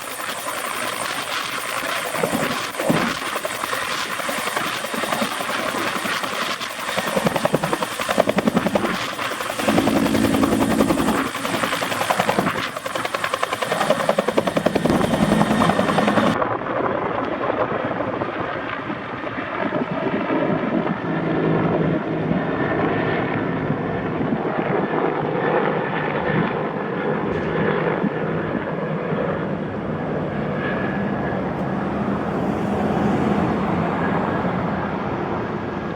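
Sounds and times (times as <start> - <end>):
helicopter rotor chopping: 0.0 - 16.4
turbine engine whine: 0.0 - 16.4.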